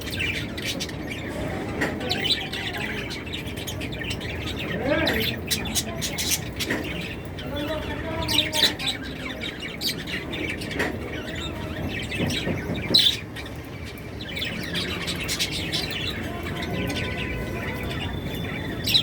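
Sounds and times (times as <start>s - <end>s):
lovebirds chirping: 0.0s - 19.0s.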